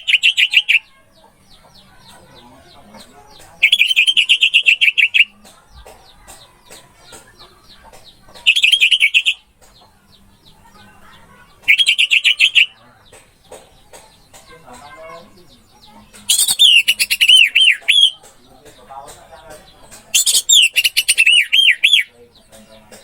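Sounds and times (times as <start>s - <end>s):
faint bird chirps: 20.1s - 22.4s.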